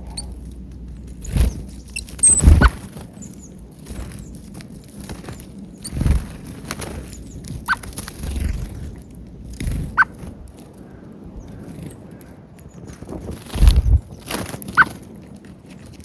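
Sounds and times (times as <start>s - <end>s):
faint high bird calls: 0.0s - 0.6s, 1.2s - 4.5s
small birds chirping: 0.0s - 15.0s
low dull thuds: 13.6s - 14.1s.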